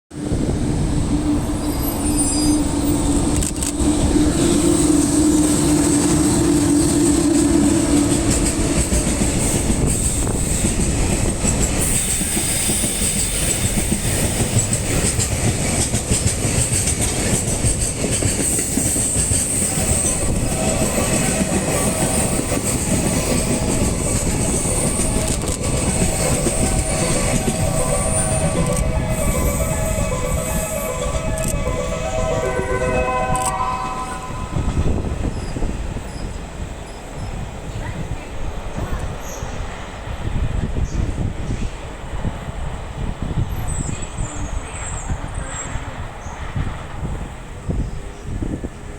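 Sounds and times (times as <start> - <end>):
freight train wheels rumbling: 0.1 - 48.9
clickety-clack over rail joints: 2.9 - 32.0
high steady tones: 19.6 - 35.6.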